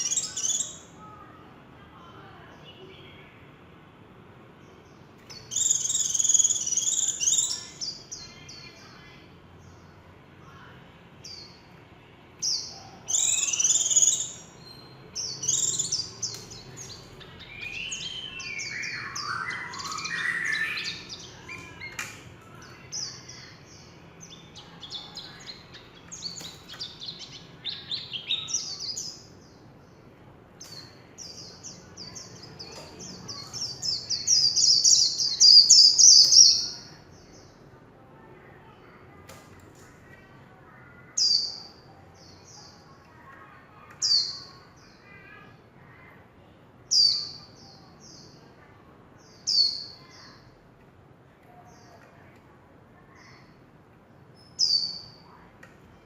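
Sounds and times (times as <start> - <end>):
bird twittering song: 0.0 - 1.4, 4.6 - 11.7, 12.4 - 37.6.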